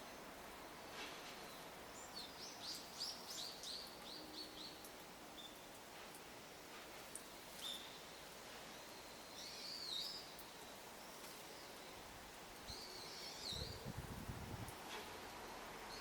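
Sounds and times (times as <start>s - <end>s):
faint outdoor background noise: 0.0s - 16.0s
small songbird calling: 7.6s - 8.1s, 8.7s - 12.0s, 12.7s - 14.0s.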